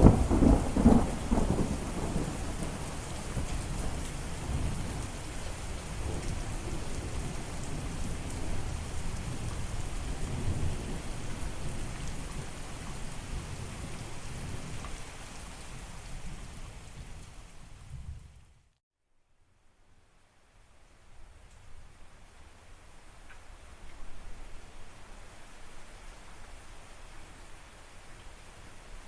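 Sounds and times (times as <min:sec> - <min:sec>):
rolling rumble of thunder: 0:00.0 - 0:14.8
rain falling: 0:00.0 - 0:18.8, 0:20.2 - 0:29.0.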